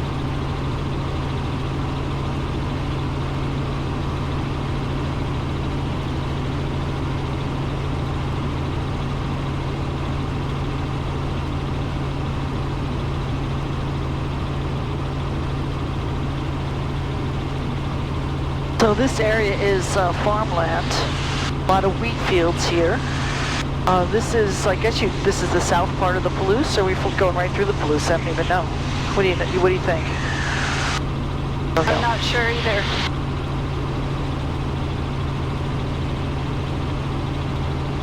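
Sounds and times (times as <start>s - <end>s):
helicopter engine and rotors drone: 0.0s - 38.0s
low hum: 9.9s - 38.0s.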